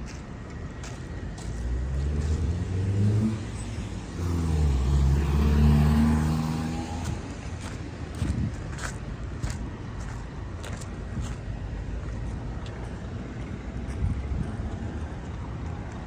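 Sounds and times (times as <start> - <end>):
car engine accelerating: 1.4 - 7.8.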